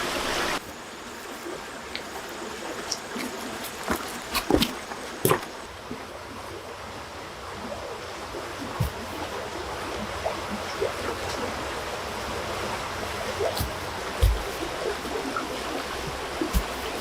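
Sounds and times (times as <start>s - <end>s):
running water rushing: 0.0s - 17.0s
dull knocks: 13.4s - 17.0s.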